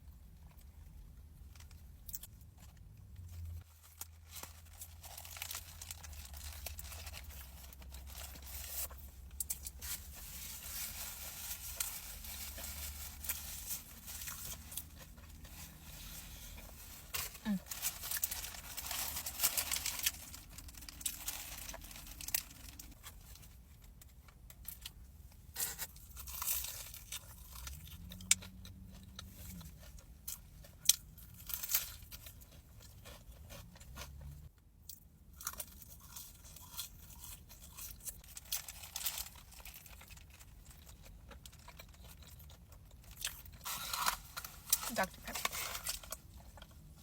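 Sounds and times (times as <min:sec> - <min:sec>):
person chewing crispy food: 0:00.3 - 0:47.0.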